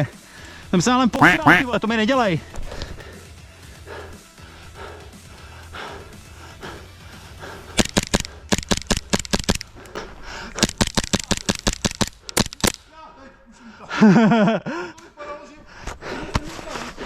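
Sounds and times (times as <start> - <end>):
airsoft gun rapid shots: 7.8 - 12.8.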